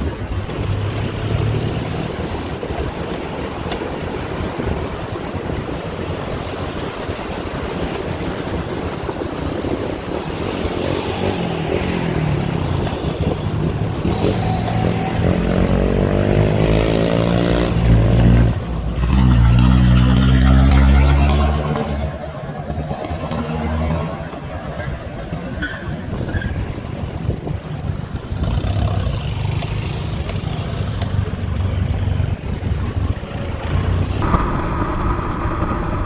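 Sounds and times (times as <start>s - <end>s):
vehicle engine accelerating: 0.0s - 3.8s, 9.5s - 25.6s
road and wind noise: 0.0s - 36.0s.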